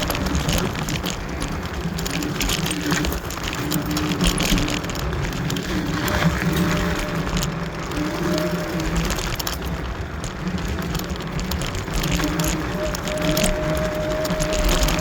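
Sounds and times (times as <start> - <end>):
wind noise: 0.0 - 15.0
electric motor whine: 12.2 - 15.0.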